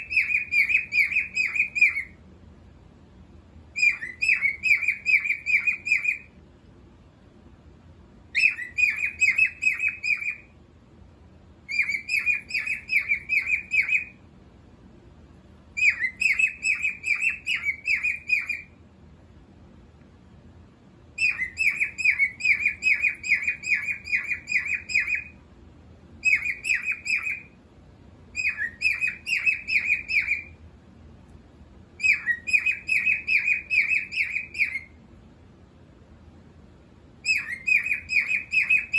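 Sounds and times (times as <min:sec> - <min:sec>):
cockatiel chirping: 0:00.0 - 0:02.2, 0:03.8 - 0:06.4, 0:08.3 - 0:10.5, 0:11.7 - 0:14.2, 0:15.8 - 0:18.8, 0:21.2 - 0:25.4, 0:26.2 - 0:27.6, 0:28.3 - 0:30.6, 0:32.0 - 0:35.0, 0:37.2 - 0:38.9.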